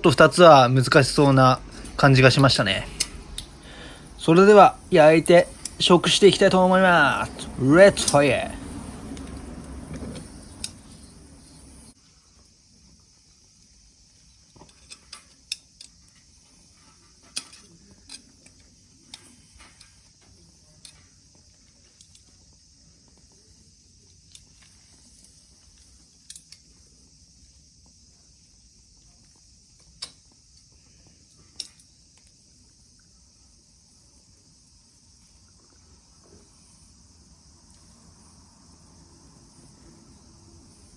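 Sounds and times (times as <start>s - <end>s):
steady high hiss: 0.0s - 20.9s, 21.6s - 40.9s
shells ticking and popping on grill: 2.8s - 6.8s, 29.4s - 30.7s.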